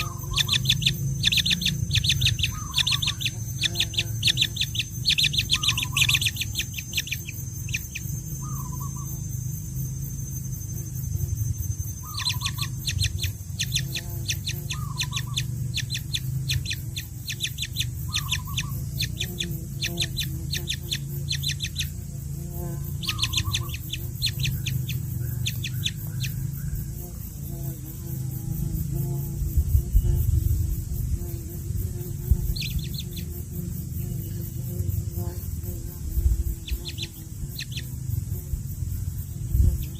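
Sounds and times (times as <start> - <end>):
baby birds chirping: 0.0 - 9.2, 12.0 - 22.0, 22.8 - 26.9, 32.5 - 33.3, 36.6 - 38.0
steady low hum: 0.0 - 39.9.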